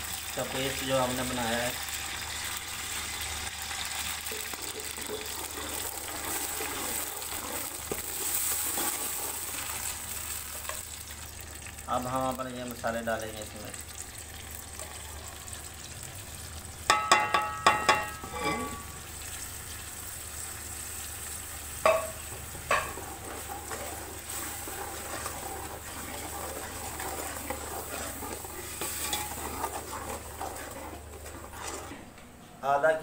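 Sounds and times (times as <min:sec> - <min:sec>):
onions sizzling in a pot: 0:00.0 - 0:32.1
ladle clanking against pot: 0:16.9 - 0:18.9, 0:21.8 - 0:23.8, 0:25.9 - 0:30.8.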